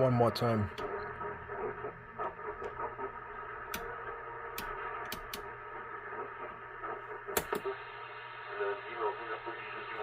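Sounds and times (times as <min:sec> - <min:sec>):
garbled radio signals: 0:00.0 - 0:10.0
radio static: 0:00.0 - 0:10.0
sharp clicks: 0:07.3 - 0:07.6.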